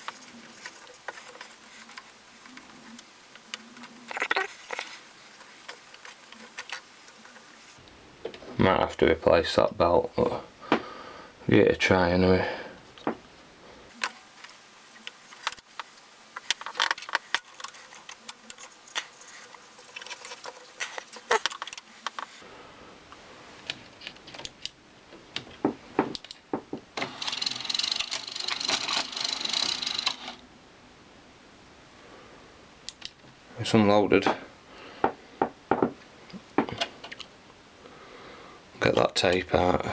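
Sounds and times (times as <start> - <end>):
mechanism clicks and rattles: 14.0 - 22.3, 27.0 - 30.4.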